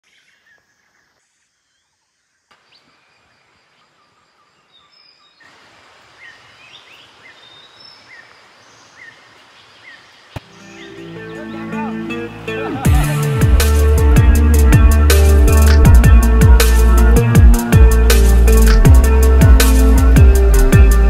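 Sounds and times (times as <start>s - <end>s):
birds chirping: 0.0s - 21.0s
steady hiss: 5.3s - 11.1s.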